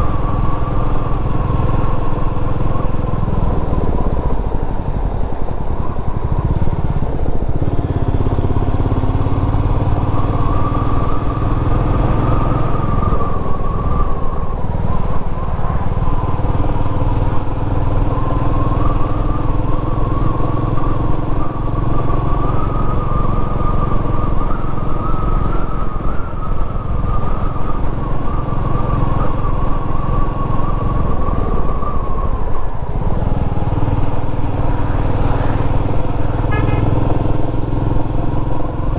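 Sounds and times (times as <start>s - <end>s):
motorcycle engine running: 32.7s - 38.9s.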